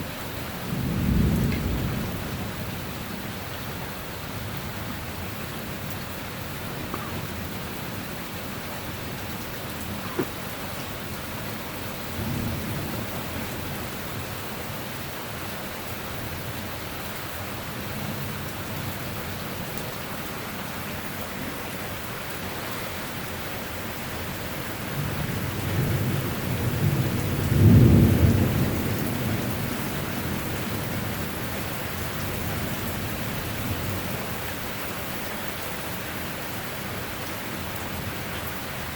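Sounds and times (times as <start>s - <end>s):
steady rain: 0.0s - 38.9s
rolling thunder: 0.6s - 2.9s, 12.0s - 13.8s, 24.9s - 31.4s.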